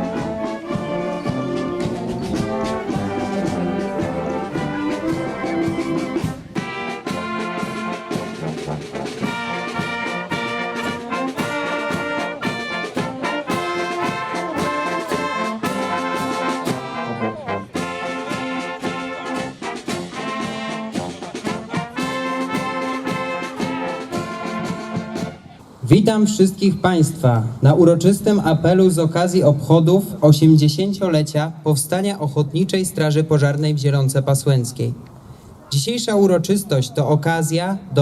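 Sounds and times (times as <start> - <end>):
steady drum beat: 0.0 - 26.0
brass band playing: 0.0 - 27.2
trombones and trumpets: 0.0 - 31.0.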